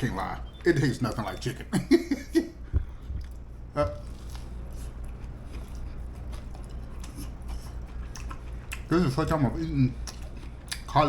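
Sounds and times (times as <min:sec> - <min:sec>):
steady low hum: 0:00.0 - 0:11.0
man chewing: 0:02.4 - 0:11.0.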